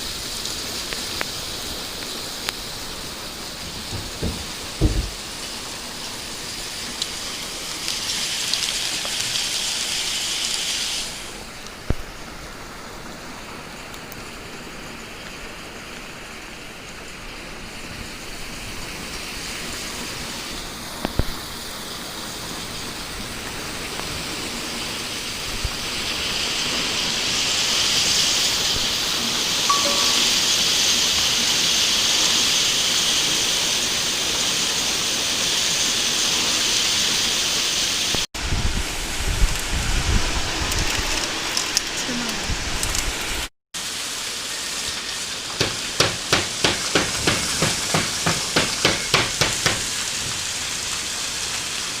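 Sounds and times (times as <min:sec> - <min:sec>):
heavy rain: 0:00.0 - 0:52.0
rushing storm runoff: 0:00.0 - 0:52.0
sharp knocks: 0:03.6 - 0:05.3, 0:45.6 - 0:50.0.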